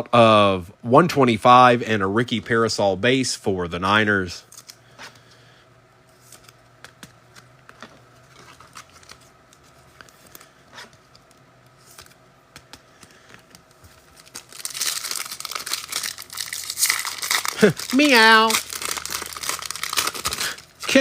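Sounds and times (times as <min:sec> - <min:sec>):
cards handled with clicks and rustles: 0:04.4 - 0:05.4, 0:06.1 - 0:21.0
foil pack tearing and crinkling: 0:13.8 - 0:21.0.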